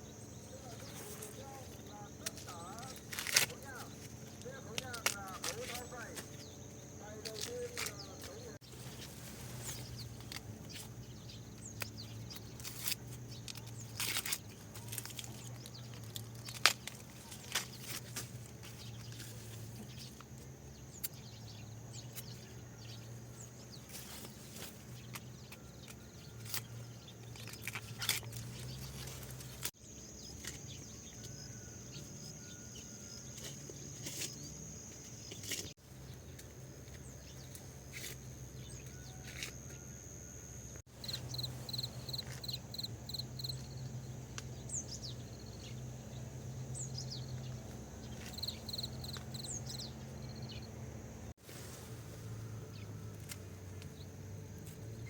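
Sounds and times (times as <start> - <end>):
high insect trill: 0.0 - 51.4
sharp crunches and clicks: 0.7 - 8.6, 9.6 - 21.4, 23.8 - 31.4, 41.0 - 43.7, 47.5 - 49.8.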